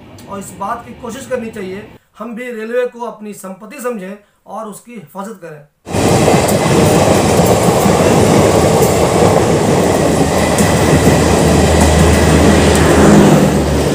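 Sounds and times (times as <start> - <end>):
train wheels rumbling on track: 5.9 - 13.9.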